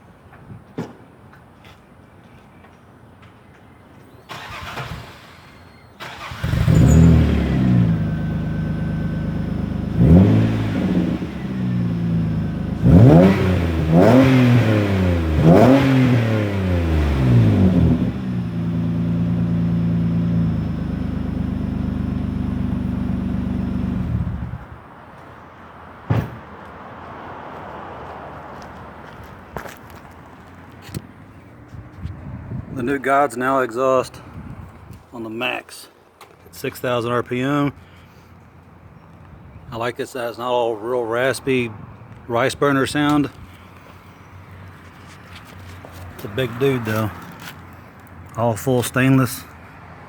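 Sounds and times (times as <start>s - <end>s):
car engine revving: 6.0s - 24.7s.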